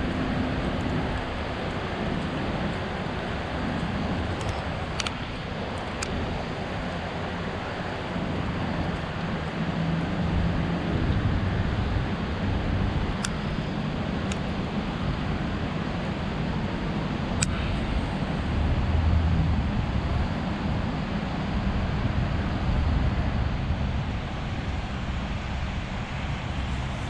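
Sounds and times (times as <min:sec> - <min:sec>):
traffic rumble: 0:00.0 - 0:27.0.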